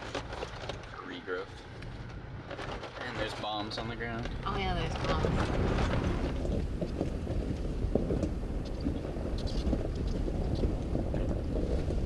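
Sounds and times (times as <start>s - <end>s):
vehicle driving on dirt trail: 3.8s - 12.0s.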